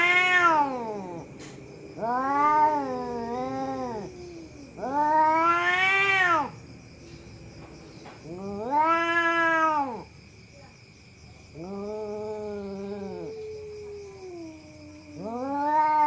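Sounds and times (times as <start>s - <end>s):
cat yowling: 0.0s - 1.3s, 2.0s - 6.6s, 8.2s - 10.1s, 11.5s - 16.0s.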